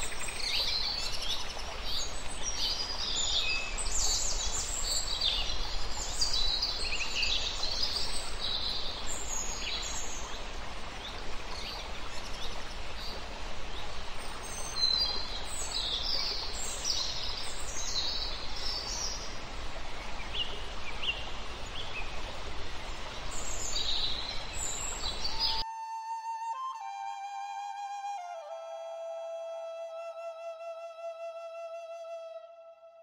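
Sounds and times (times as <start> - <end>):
forest ambience hiss: 0.0 - 32.7
flute music: 25.6 - 33.0.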